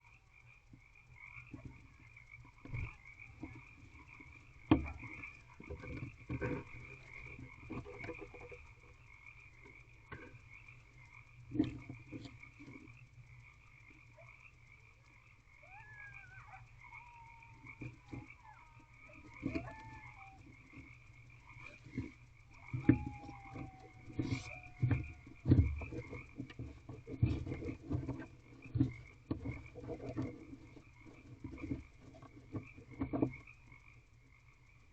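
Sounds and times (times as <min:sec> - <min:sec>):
trilling frog chorus: 0:00.0 - 0:34.9.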